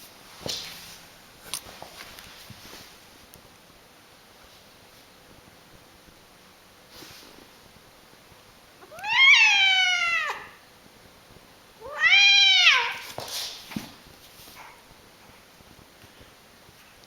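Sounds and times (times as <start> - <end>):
cat yowling meows: 8.8 - 10.6, 11.8 - 13.1.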